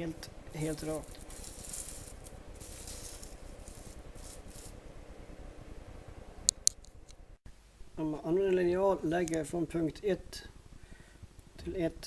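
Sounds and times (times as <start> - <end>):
plastic sheets rustling: 0.0 - 4.9.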